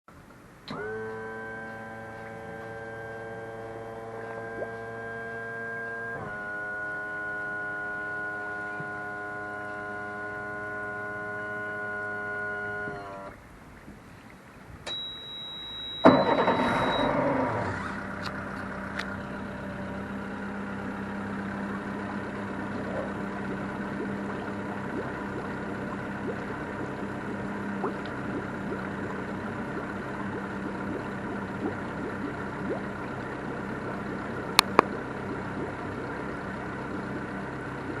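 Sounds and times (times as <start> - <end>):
boat engine starting and idling: 0.1 - 38.0
high warning beep: 14.9 - 17.2.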